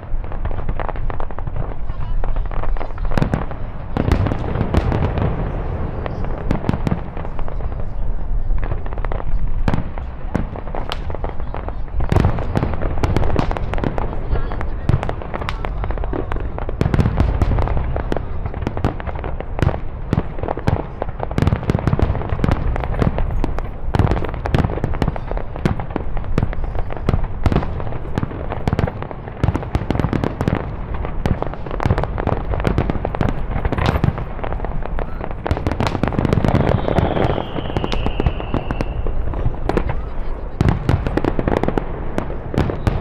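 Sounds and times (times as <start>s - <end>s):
fireworks bangs and crackling: 0.0s - 43.0s
firework whistle: 34.8s - 41.2s, 42.6s - 43.0s.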